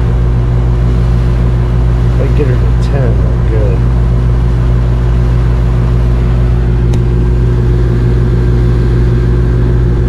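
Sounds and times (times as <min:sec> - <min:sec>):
air conditioner unit humming: 0:00.0 - 0:10.0.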